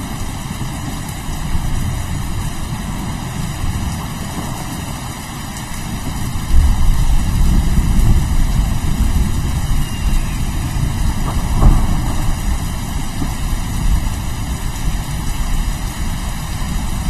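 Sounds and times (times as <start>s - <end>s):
rain: 0.0s - 17.0s
rolling thunder: 0.0s - 17.0s
sharp thunder crack: 6.4s - 15.2s.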